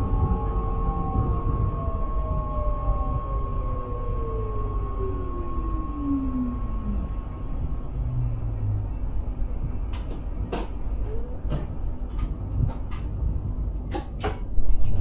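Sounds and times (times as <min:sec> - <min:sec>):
train rumbling along track: 0:06.5 - 0:15.0.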